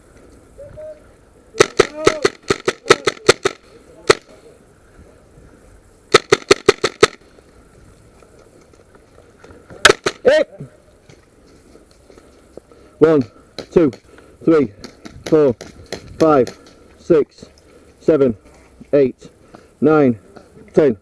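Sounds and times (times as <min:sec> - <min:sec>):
airsoft guns firing: 0:01.6 - 0:04.4, 0:06.1 - 0:07.3, 0:09.8 - 0:10.3.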